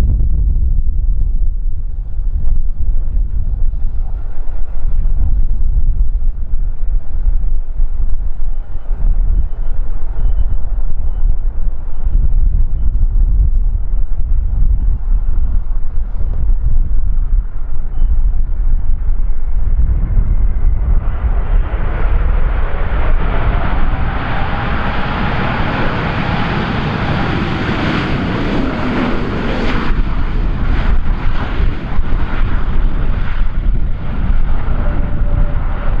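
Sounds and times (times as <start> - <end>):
wind rumble on microphone: 0.0 - 36.0
airliner jet engines rushing: 14.0 - 36.0.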